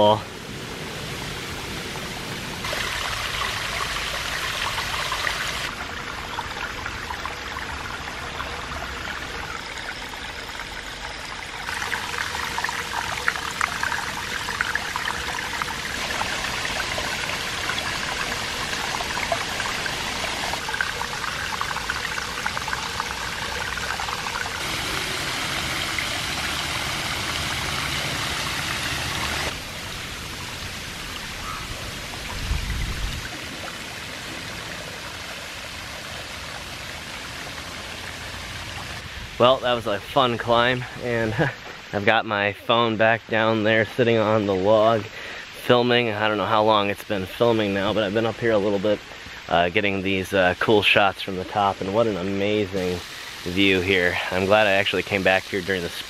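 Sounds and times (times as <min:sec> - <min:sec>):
waterfall splashing over rock: 0:00.0 - 0:07.8, 0:10.5 - 0:42.2, 0:44.5 - 0:56.0.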